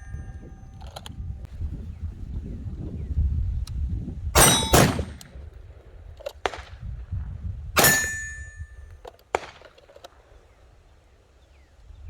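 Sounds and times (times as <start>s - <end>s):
metallic ring: 0.0s - 0.9s, 4.4s - 5.2s, 7.8s - 8.9s
handgun shots: 4.4s - 5.4s, 7.8s - 8.6s.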